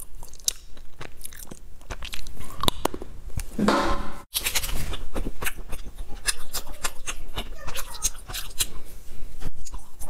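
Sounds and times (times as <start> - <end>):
crunching and chewing clicks: 0.0 - 3.1, 4.3 - 8.8.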